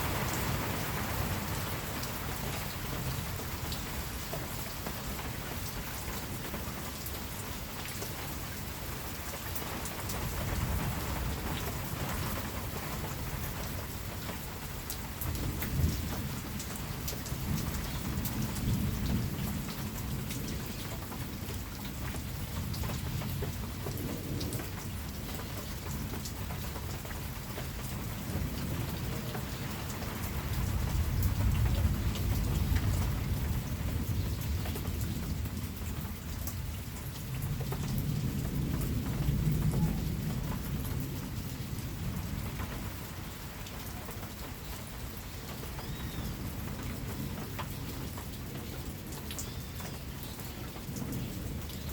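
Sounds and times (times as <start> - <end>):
steady rain falling: 0.0 - 51.9
thunder rumbling: 36.9 - 43.0.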